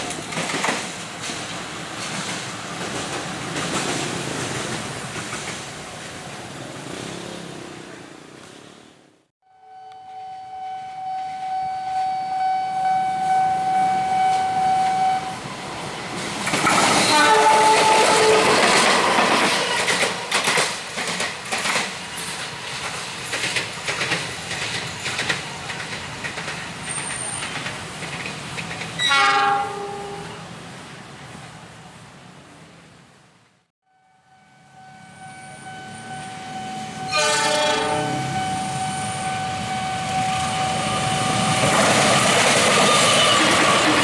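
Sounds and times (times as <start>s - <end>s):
wheels clacking over rail joints: 0.0s - 7.1s, 15.4s - 30.4s, 36.9s - 44.0s
train horn blasts: 9.4s - 15.4s, 16.7s - 18.6s, 29.0s - 30.4s, 33.8s - 41.7s.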